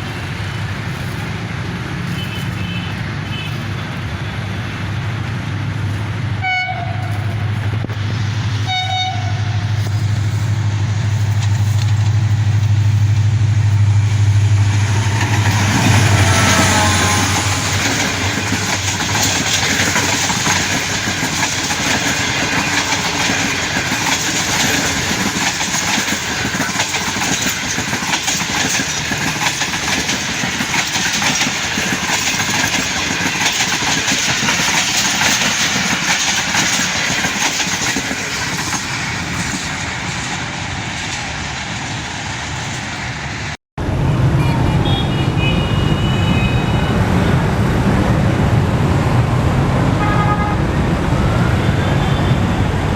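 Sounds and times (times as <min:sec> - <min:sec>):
train rumbling on rails: 0:00.0 - 0:52.9
wheel clatter: 0:09.7 - 0:40.4.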